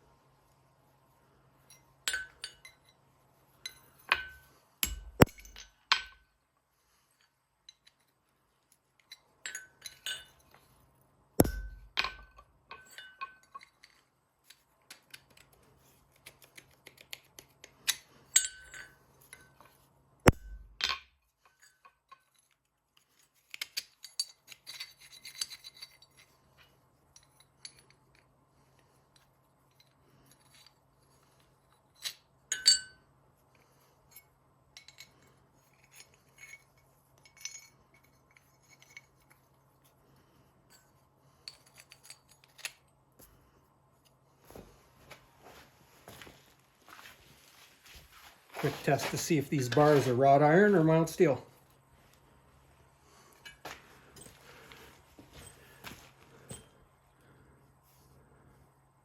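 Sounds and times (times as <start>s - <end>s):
steel parts clinking: 1.7s - 3.0s, 3.6s - 6.3s, 7.2s - 10.6s, 11.4s - 15.6s, 16.9s - 28.3s, 31.6s - 33.0s, 34.0s - 39.6s, 40.7s - 42.9s.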